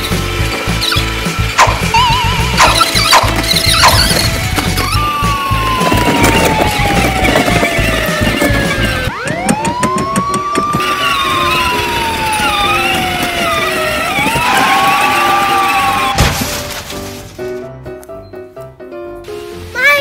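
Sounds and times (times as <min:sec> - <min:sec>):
police siren wailing: 0:01.6 - 0:16.2.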